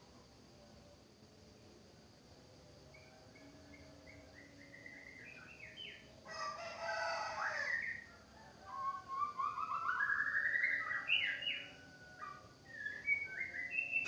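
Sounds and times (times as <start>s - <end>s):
bird singing whistled notes: 2.9s - 14.0s.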